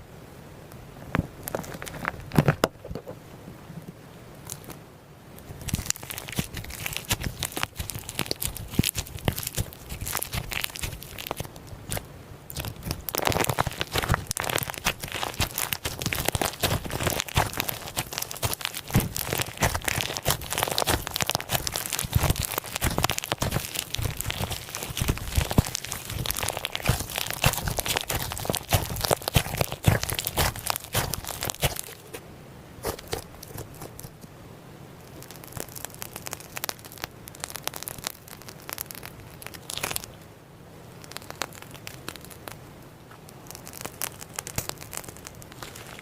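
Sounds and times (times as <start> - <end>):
slime crunching and crackling: 1.4 - 2.6, 4.4 - 4.8, 5.4 - 32.2, 32.8 - 34.3, 35.0 - 40.2, 40.9 - 46.0.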